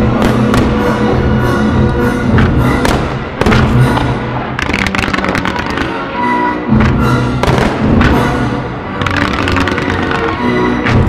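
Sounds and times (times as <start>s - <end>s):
fireworks bursting and crackling: 0.0s - 1.2s, 2.3s - 6.2s, 6.8s - 11.0s
music: 0.0s - 11.0s.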